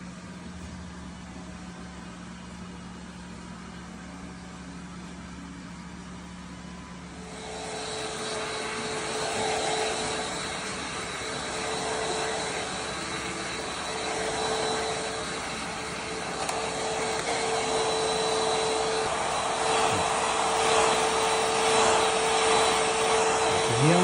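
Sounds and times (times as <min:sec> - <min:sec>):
hair dryer blowing: 0:07.1 - 0:24.0.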